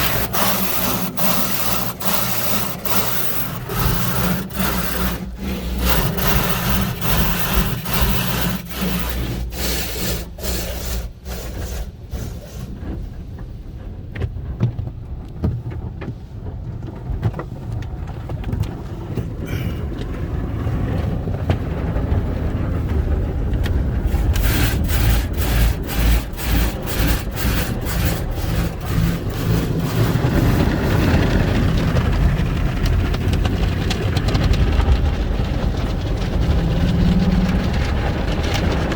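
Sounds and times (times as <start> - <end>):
car wash brushes slapping: 0.0 - 13.5, 23.7 - 38.9
low rumble of car wash equipment: 0.0 - 38.9.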